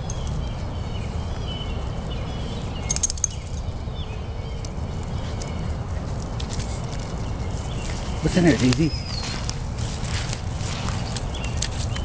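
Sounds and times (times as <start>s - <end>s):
rustling crackle: 5.0s - 12.0s.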